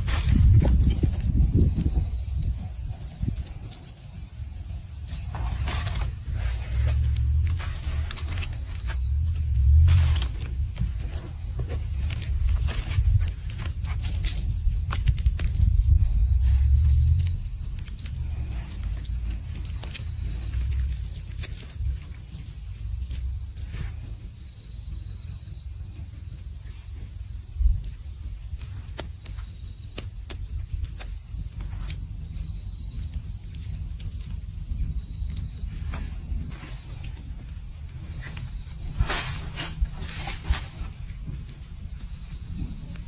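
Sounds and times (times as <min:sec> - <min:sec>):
insect trilling: 0:00.0 - 0:43.0
low rumble: 0:04.3 - 0:21.1.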